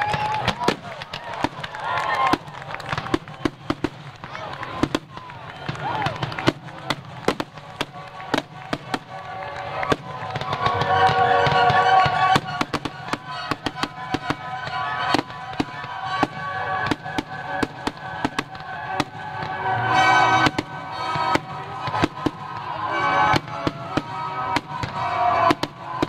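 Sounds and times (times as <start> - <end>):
fireworks shells bursting: 0.0 - 26.0
music with sustained tones: 9.2 - 26.0.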